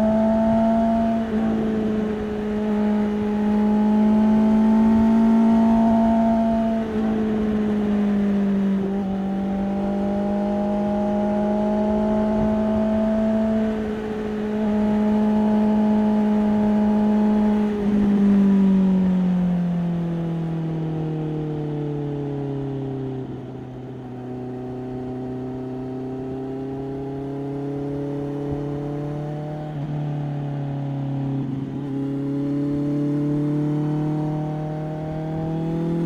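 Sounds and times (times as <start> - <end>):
motorcycle engine accelerating: 0.0 - 21.0, 22.8 - 36.0.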